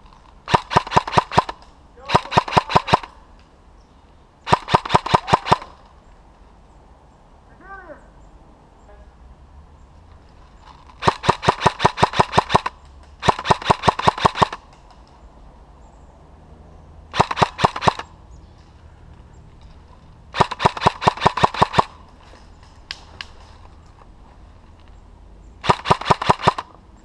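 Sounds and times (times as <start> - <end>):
airsoft gun firing: 0.5 - 3.2, 4.5 - 5.8, 11.0 - 14.6, 17.1 - 18.1, 20.3 - 22.0, 25.6 - 26.8.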